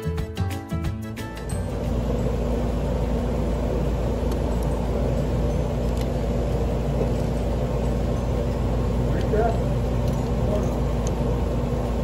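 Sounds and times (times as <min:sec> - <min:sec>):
industrial machinery humming: 0:01.2 - 0:12.0.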